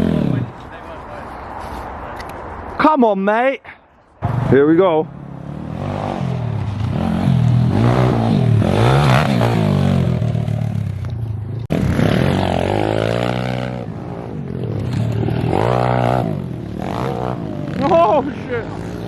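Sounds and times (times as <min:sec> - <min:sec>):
motorbike engine revving: 0:05.2 - 0:19.0.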